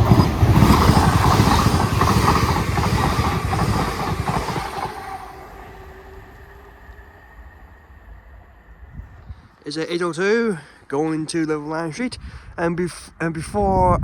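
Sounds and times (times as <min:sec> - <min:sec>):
train wheels rushing on rails: 0:00.0 - 0:09.4.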